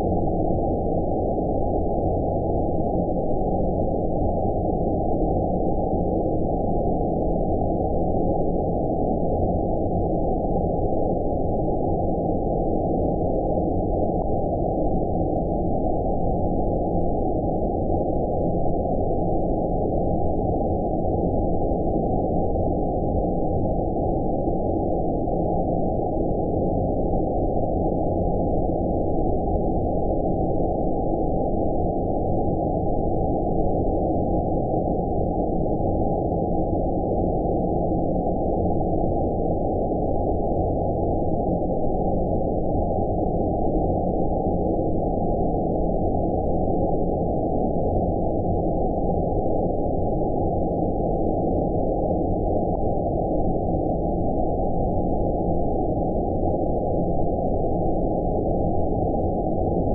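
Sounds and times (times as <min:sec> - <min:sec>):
muffled rushing white noise: 0:00.0 - 0:59.9.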